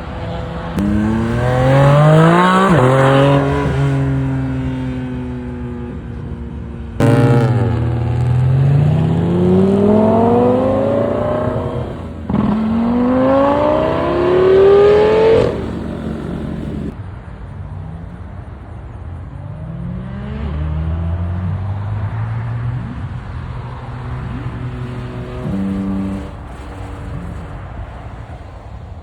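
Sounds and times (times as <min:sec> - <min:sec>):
car engine accelerating: 0:00.0 - 0:06.3, 0:07.0 - 0:17.0, 0:22.9 - 0:27.7.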